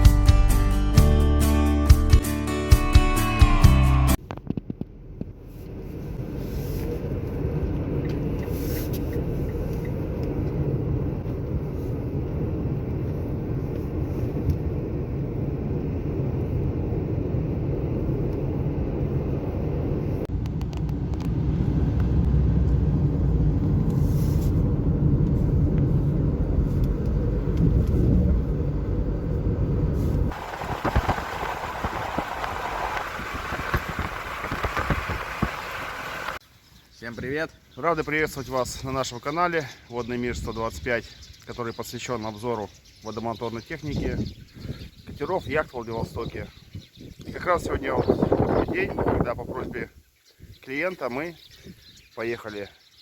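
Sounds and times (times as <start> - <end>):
vehicle rumble: 4.0 - 36.7.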